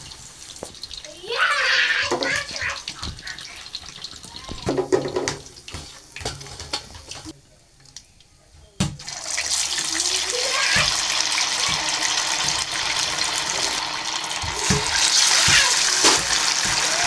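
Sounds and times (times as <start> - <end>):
tap water running into sink: 1.5 - 7.3, 9.0 - 17.0.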